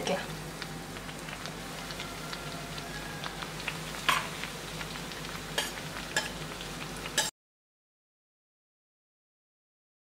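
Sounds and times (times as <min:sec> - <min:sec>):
bread frying in oil: 0:00.0 - 0:07.3
metal skimmer clinking on pan: 0:05.6 - 0:06.4.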